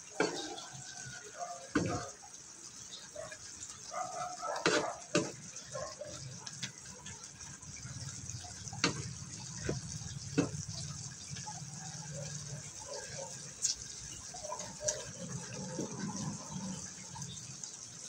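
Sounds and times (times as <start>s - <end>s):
food simmering hissing and bubbling: 0.0s - 18.0s
wooden spatula knocking on pan: 8.8s - 10.6s.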